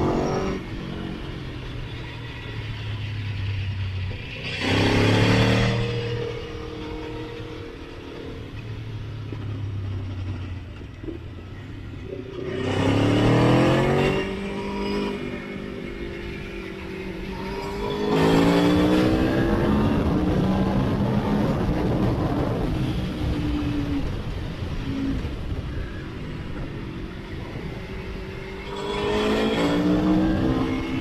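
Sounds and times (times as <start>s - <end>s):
motorcycle engine revving: 0.0s - 26.0s, 26.6s - 31.0s.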